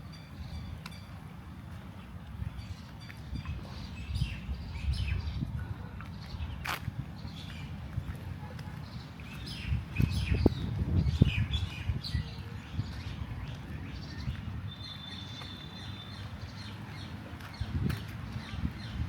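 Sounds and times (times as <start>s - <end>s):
small birds chirping: 6.1s - 19.0s.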